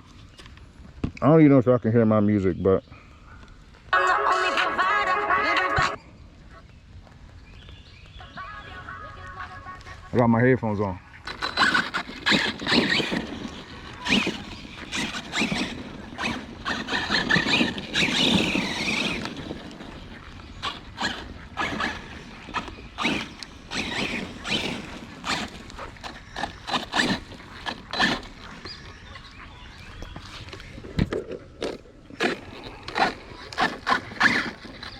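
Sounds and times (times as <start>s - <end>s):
squeals and scrapes on wet ground: 7.5s - 34.9s
rc car motor whining: 11.2s - 30.8s, 31.6s - 34.9s.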